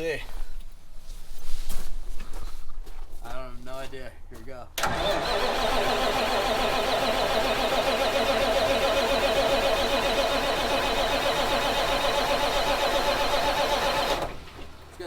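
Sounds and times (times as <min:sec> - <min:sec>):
starter motor cranking diesel engine: 0:04.8 - 0:15.0.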